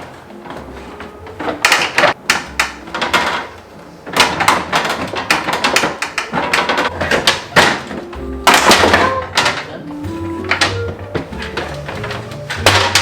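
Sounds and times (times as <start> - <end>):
containers knocking and rattling: 0.0 - 13.0.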